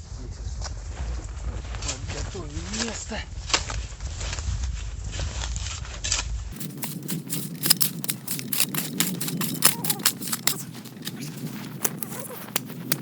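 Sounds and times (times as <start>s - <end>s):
footsteps crunching in snow: 6.6s - 13.0s.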